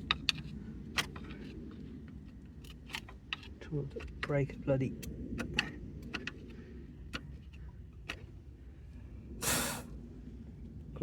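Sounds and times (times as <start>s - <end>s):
person exhaling with effort: 9.4s - 9.9s.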